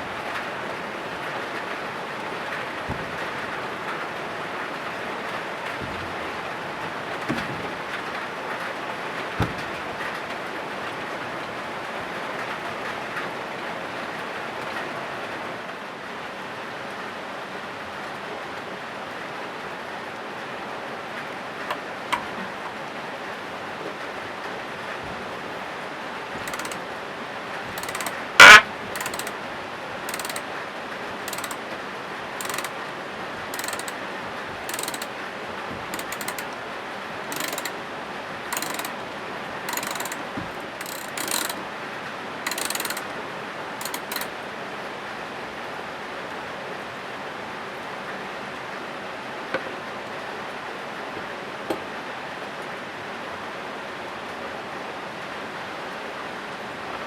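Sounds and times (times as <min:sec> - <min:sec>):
hand tool ratcheting rasps: 0:26.4 - 0:26.8, 0:27.7 - 0:29.4, 0:30.0 - 0:30.5, 0:31.2 - 0:31.7, 0:32.4 - 0:32.8, 0:33.5 - 0:34.0, 0:34.6 - 0:35.2, 0:35.8 - 0:36.6, 0:37.3 - 0:37.8, 0:38.5 - 0:39.0, 0:39.7 - 0:41.6, 0:42.5 - 0:43.1, 0:43.8 - 0:44.3
sharp tool click: 0:26.4 - 0:26.8, 0:27.8 - 0:29.3, 0:30.1 - 0:30.4, 0:31.3 - 0:31.6, 0:32.4 - 0:32.7, 0:33.6 - 0:34.0, 0:34.7 - 0:35.1, 0:35.9 - 0:36.5, 0:37.3 - 0:37.8, 0:38.6 - 0:38.9, 0:39.7 - 0:41.6, 0:42.5 - 0:43.0, 0:43.8 - 0:44.3.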